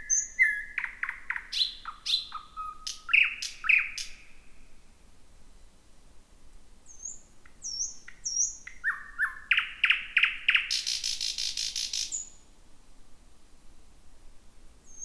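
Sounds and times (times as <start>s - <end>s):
nightingale singing: 0.0s - 4.5s, 6.9s - 12.4s.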